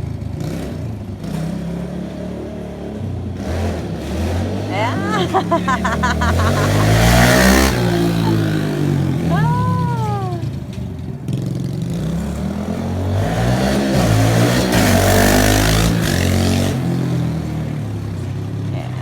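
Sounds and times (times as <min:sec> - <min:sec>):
dirt bike engine revving: 0:13.1 - 0:16.9.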